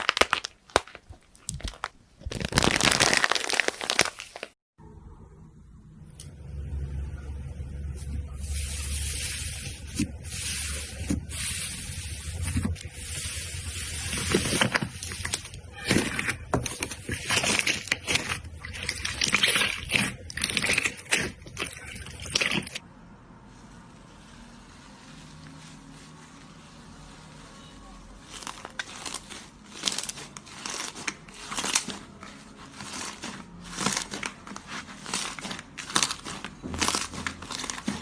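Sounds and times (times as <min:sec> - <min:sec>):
slime popping and crackling: 0:00.0 - 0:04.6, 0:12.4 - 0:22.8, 0:28.2 - 0:38.0
slime squelching: 0:07.9 - 0:22.8, 0:23.9 - 0:38.0.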